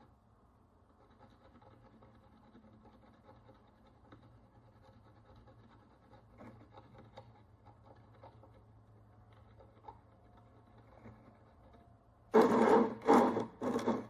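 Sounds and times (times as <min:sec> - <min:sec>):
hand tool scratching metal: 0:12.4 - 0:14.0.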